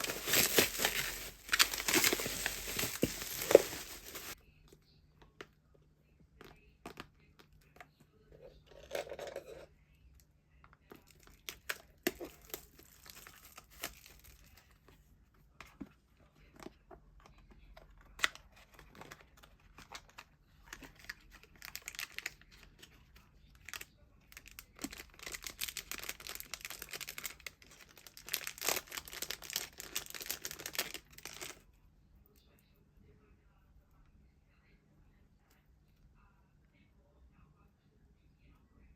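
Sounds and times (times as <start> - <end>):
plastic packaging tearing and crinkling: 0.0 - 4.4, 11.2 - 14.6, 20.9 - 22.8, 24.4 - 31.6.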